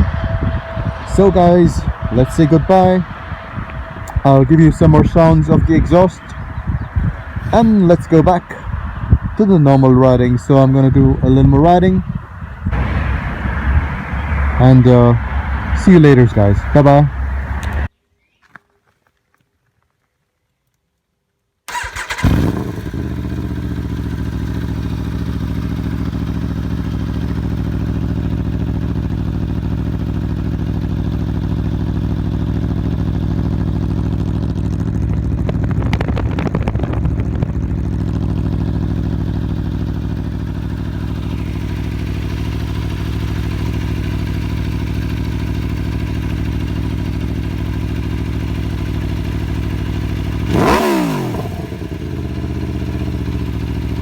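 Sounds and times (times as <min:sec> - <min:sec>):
motorcycle engine idling: 0:00.4 - 0:17.4, 0:21.7 - 0:54.0
engine revving: 0:12.6 - 0:17.9, 0:21.7 - 0:54.0.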